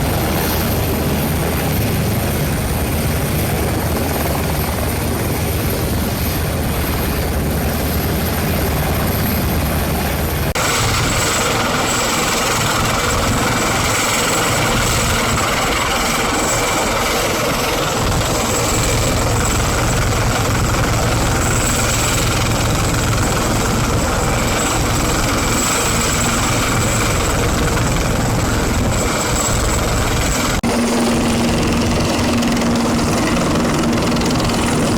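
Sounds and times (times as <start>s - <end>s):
helicopter rotors and turbine: 0.0s - 34.9s.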